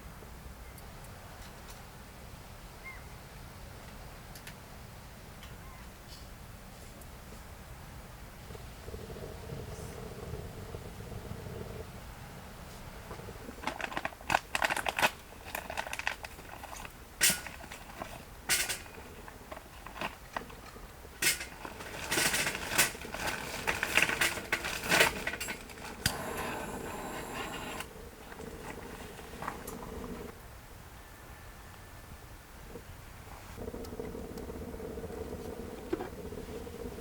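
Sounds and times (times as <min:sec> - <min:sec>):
clatter: 0:13.1 - 0:26.2.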